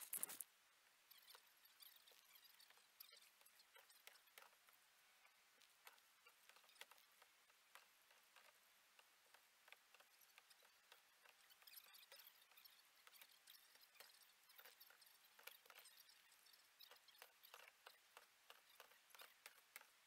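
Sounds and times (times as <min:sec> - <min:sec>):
faint small ticks and taps: 0:01.1 - 0:20.0.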